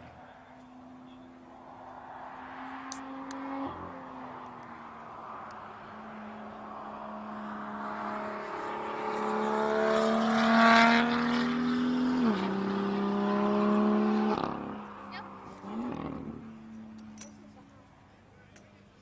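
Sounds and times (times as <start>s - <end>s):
car engine accelerating: 0.0s - 17.8s.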